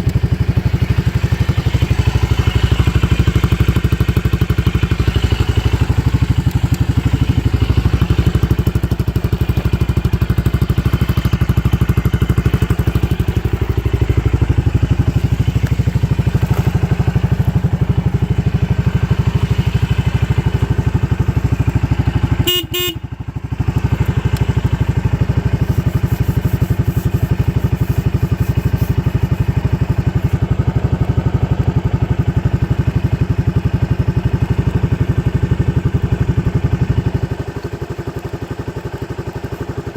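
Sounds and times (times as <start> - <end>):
scooter engine idling: 0.0 - 39.9
horn beep: 22.4 - 23.1.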